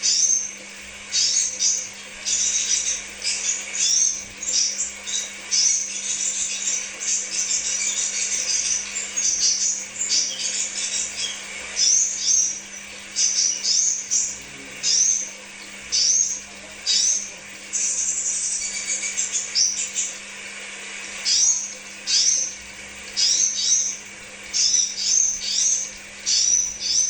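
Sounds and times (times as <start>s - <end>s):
bird chirping high and thin: 23.2s - 27.0s.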